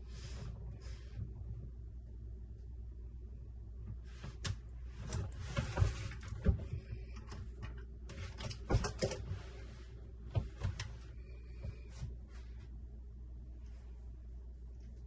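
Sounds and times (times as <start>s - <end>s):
rustling and scraping: 0.0s - 1.8s, 3.9s - 12.9s
low steady hum: 0.0s - 15.0s.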